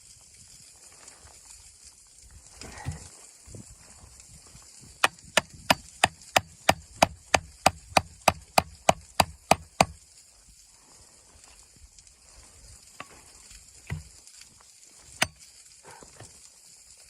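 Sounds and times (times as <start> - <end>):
chopping on wood: 2.8 - 3.1, 5.0 - 10.0, 13.9 - 14.1, 15.2 - 15.4.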